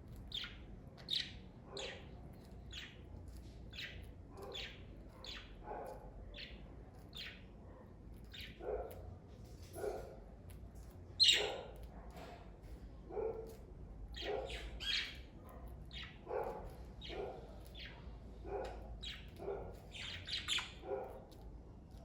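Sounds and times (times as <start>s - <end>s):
budgerigars chirping: 0.3s - 2.0s, 3.7s - 5.6s, 11.2s - 11.6s, 14.2s - 15.2s, 15.9s - 16.2s, 19.9s - 20.8s.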